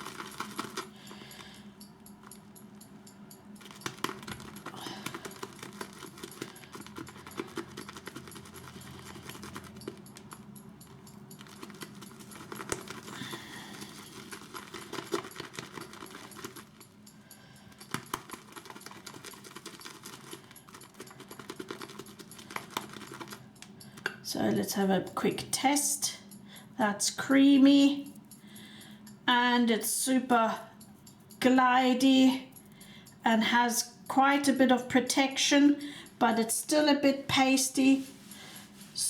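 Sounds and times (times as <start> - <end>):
brush clicking against bowl: 0.0 - 25.6.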